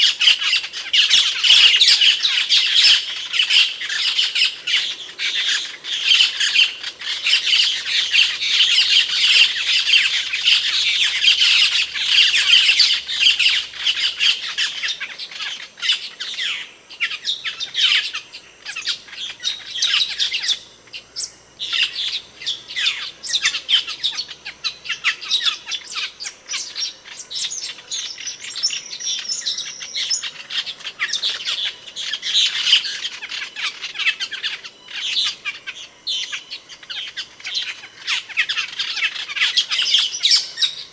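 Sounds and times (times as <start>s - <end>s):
starling calling: 0.0s - 40.9s.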